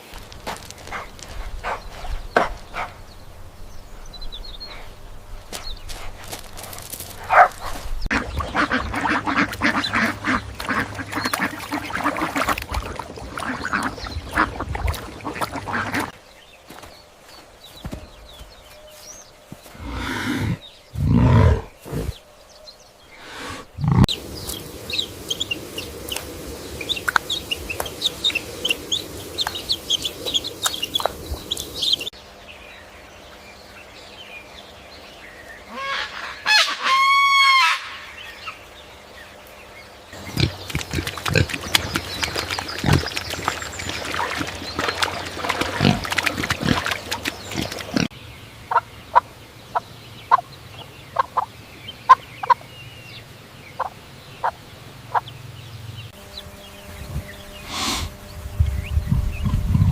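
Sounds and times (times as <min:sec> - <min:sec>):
chickens clucking and cheeping: 0:07.4 - 0:16.8, 0:23.2 - 0:32.2, 0:40.2 - 0:52.7, 0:53.6 - 0:59.9
loud pitched chicken call: 0:35.7 - 0:38.1.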